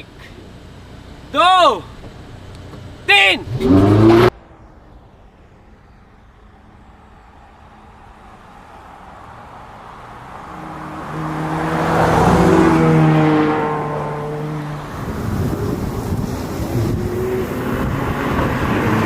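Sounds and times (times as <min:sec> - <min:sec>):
supercar engines accelerating: 0:03.4 - 0:04.7, 0:08.9 - 0:19.0.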